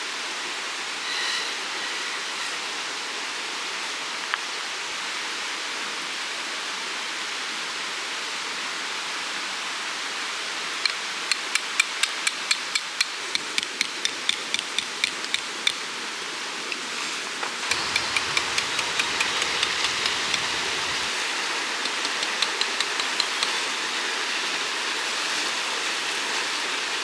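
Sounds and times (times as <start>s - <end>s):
rushing hiss of wind or water: 0.0s - 27.0s
hammer striking metal tent peg: 10.9s - 15.8s.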